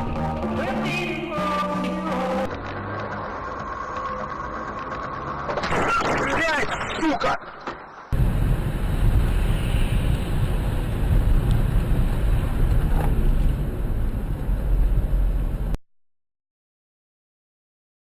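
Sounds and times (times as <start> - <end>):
car driving rumble: 0.6 - 15.8.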